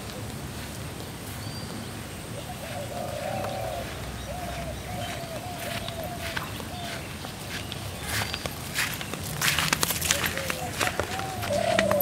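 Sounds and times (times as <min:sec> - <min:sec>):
bird hooting cooing notes: 0:02.4 - 0:07.1, 0:10.1 - 0:12.0
footsteps on grassy path: 0:02.4 - 0:12.0.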